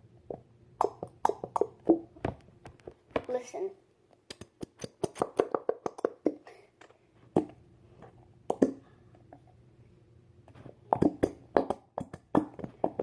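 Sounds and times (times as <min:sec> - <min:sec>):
slime squelching and popping: 0:10.8 - 0:13.0.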